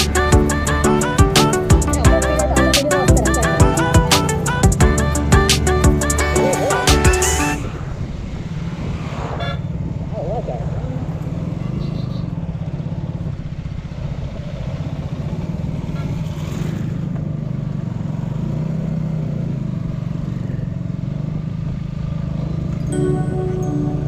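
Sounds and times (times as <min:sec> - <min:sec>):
music: 0:00.0 - 0:07.6, 0:22.9 - 0:24.0.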